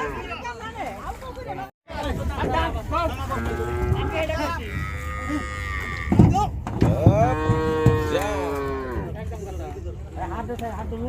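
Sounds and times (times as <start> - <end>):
cattle mooing: 3.3 - 6.3, 6.9 - 9.1.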